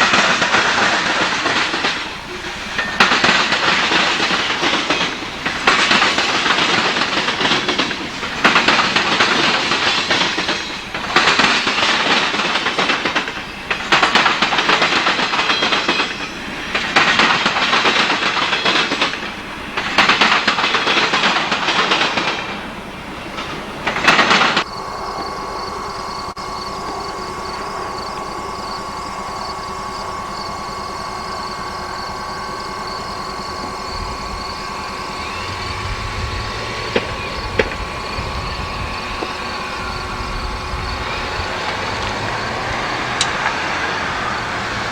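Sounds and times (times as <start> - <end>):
train wheels clattering over rail joints: 0.0 - 44.9
hum with high tone: 24.7 - 43.2.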